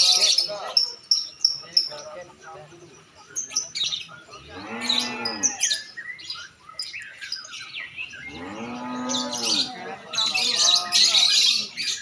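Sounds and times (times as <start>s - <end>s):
lovebirds chirping: 0.0s - 12.0s
low moo-like call: 8.3s - 9.8s.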